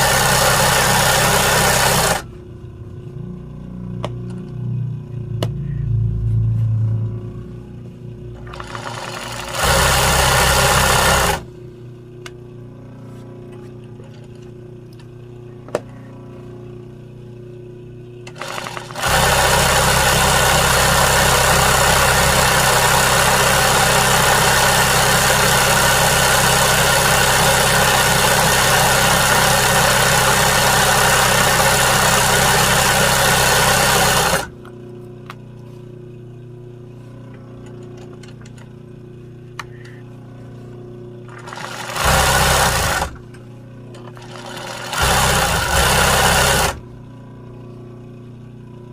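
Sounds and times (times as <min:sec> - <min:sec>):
sewing machine stitching: 0:00.0 - 0:02.3, 0:08.4 - 0:11.5, 0:18.3 - 0:34.5, 0:41.3 - 0:43.2, 0:44.0 - 0:46.8.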